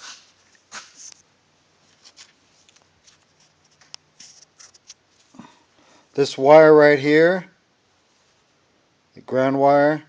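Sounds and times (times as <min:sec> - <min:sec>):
rustles and scrapes: 0:00.0 - 0:05.6, 0:08.0 - 0:08.5.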